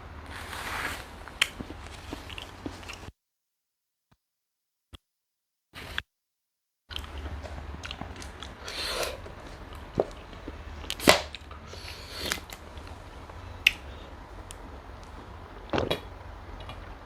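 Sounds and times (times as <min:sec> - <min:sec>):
low steady hum: 0:00.0 - 0:03.1, 0:06.9 - 0:17.0
person chewing and crunching: 0:01.2 - 0:03.1, 0:06.9 - 0:15.2.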